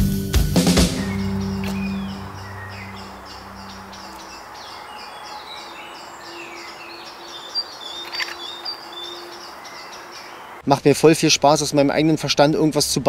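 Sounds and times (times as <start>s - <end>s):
birds chirping: 0.6s - 10.7s
sharp clicks: 8.0s - 8.4s.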